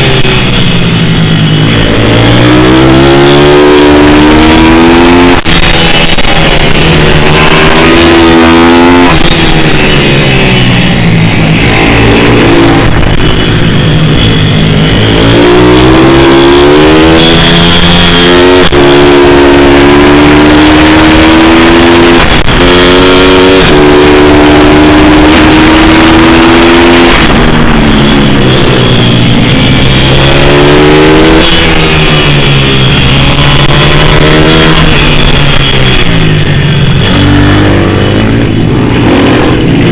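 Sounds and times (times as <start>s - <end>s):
small motorcycle engine revving: 0.0s - 39.9s.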